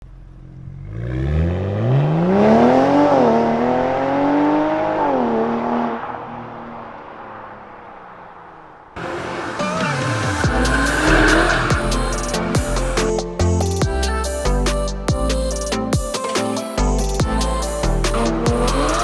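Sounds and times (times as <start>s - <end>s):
car engine accelerating hard: 0.1s - 13.0s.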